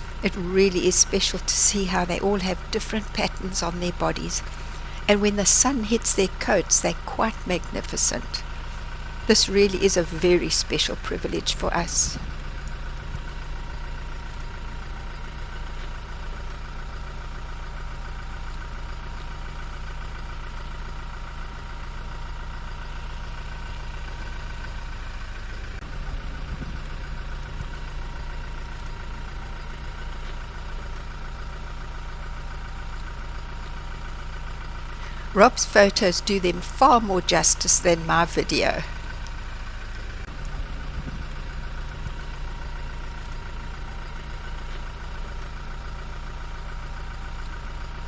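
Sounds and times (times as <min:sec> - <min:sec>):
faint steady whine: 0:00.0 - 0:13.6
vehicle engine idling: 0:00.0 - 0:48.0.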